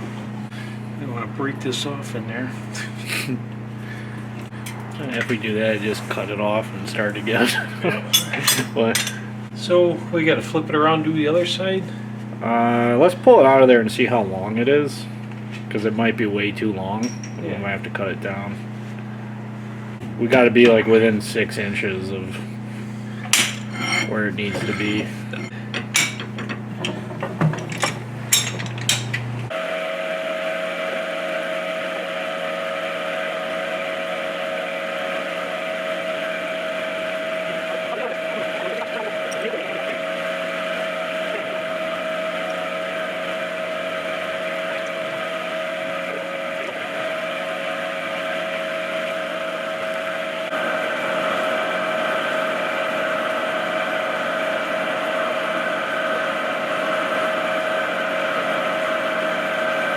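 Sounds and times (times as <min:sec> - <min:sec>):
machine running with whine and hiss: 0:29.5 - 0:59.9.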